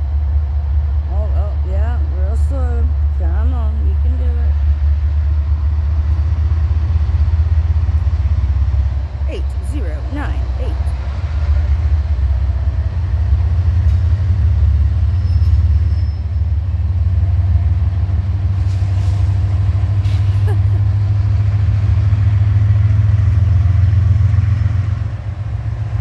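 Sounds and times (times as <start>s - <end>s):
train passing rumble: 0.0s - 26.0s
faint thin squeal: 15.2s - 16.4s.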